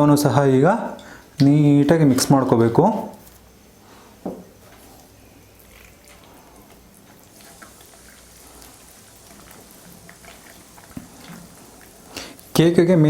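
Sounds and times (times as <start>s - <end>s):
batter stirred in a bowl: 4.6s - 13.0s.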